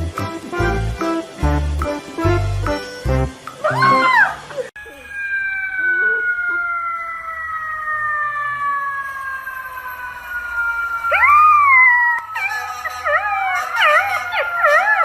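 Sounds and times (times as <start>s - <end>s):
dogs howling: 3.6s - 15.0s.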